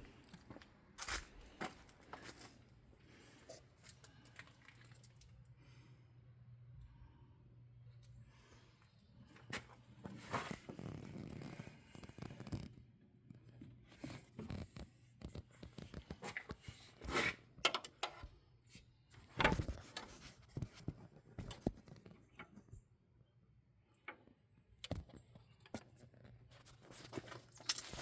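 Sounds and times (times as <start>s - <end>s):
rustling and scraping: 9.2s - 12.7s, 24.9s - 28.0s
tools clicking and knocking: 17.6s - 18.3s.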